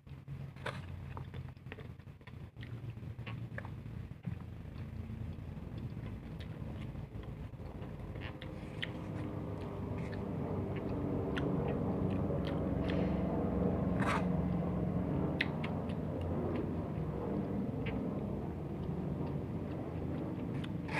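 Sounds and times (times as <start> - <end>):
person chewing food: 0.0 - 20.9
steady low hum: 0.0 - 20.9.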